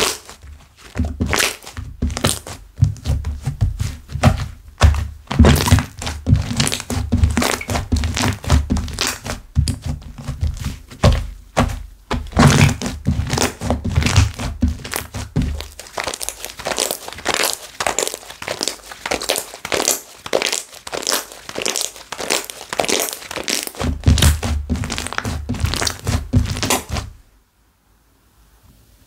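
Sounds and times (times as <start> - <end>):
slime squishing by hand: 0.0 - 27.3
heavy thuds of slime pressed: 1.0 - 15.8
air bubbles popping and crackling: 12.3 - 26.8.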